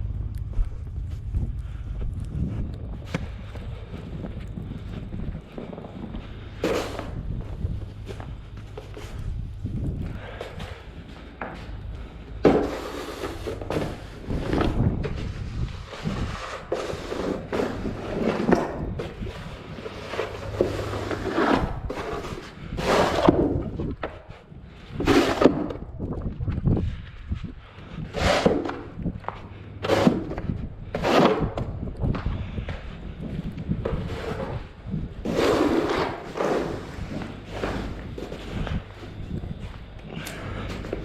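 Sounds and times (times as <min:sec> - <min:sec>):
low engine hum: 0:00.0 - 0:16.0
snow plow scrapes and thumps: 0:03.0 - 0:09.3, 0:09.9 - 0:24.2, 0:24.9 - 0:25.8, 0:28.0 - 0:32.2, 0:33.8 - 0:39.6.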